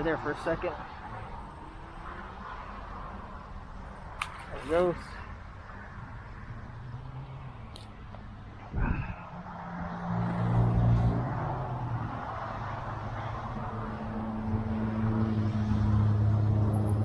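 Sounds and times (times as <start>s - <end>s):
engine humming: 0.0s - 9.5s.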